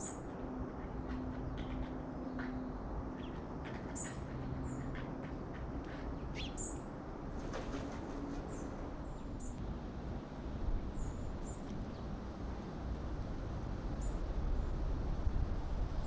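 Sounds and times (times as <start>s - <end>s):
small birds chirping: 5.9s - 6.9s.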